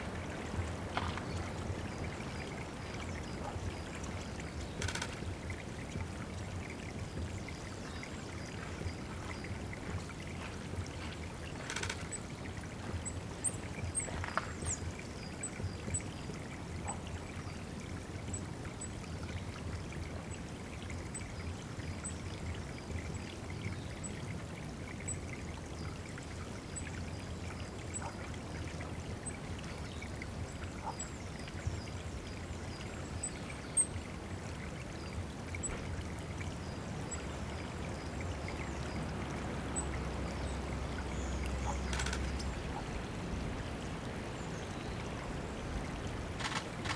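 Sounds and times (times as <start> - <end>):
water trickling and splashing: 0.0 - 46.9
songbird high thin calls: 41.5 - 42.9.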